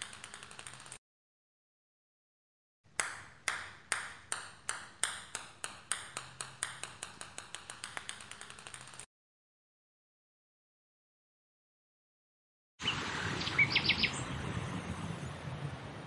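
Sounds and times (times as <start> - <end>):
ping-pong ball bouncing: 0.0 - 1.0, 2.9 - 9.1.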